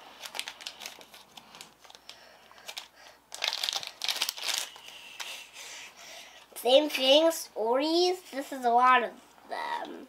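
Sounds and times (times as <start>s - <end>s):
plastic wrapper crinkling: 0.2s - 5.4s.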